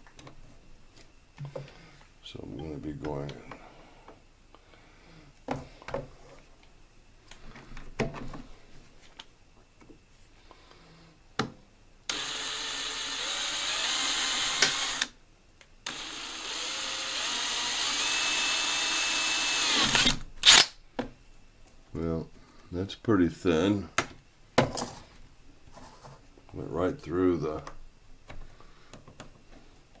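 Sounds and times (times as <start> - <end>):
power drill whining: 12.1 - 15.1, 15.8 - 20.6.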